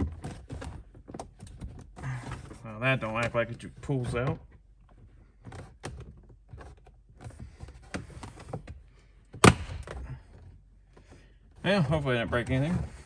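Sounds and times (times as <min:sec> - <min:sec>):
plastic clip snapping: 0:09.4 - 0:10.0.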